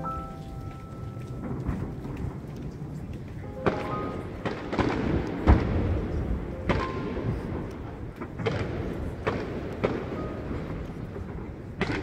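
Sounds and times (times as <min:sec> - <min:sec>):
fireworks shells booming: 0:03.6 - 0:12.0.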